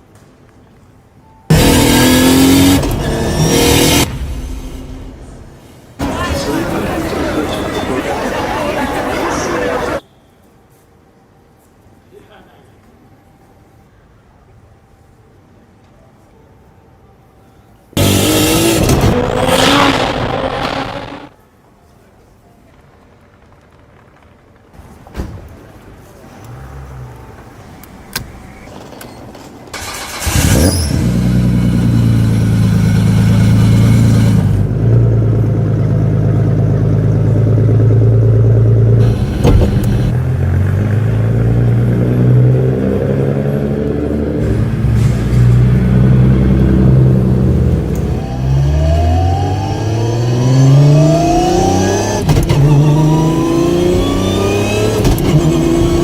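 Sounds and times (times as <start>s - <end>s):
car engine revving: 1.5s - 10.0s, 18.0s - 21.3s, 29.8s - 56.0s
car engine starting and idling: 1.5s - 10.0s, 18.0s - 21.3s, 26.3s - 56.0s.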